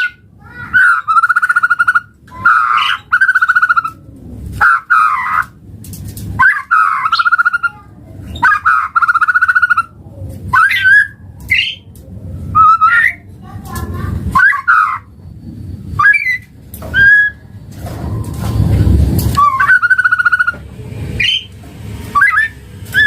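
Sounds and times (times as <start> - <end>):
bird buzzy rattling trills: 15.9 - 23.0
bird sliding whistled notes: 16.0 - 17.4.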